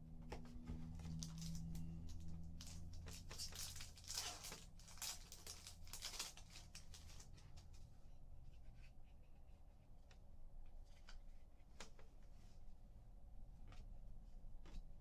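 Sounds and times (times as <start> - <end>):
low steady hum: 0.0 - 15.0
cards rustling and crinkling: 0.4 - 7.9.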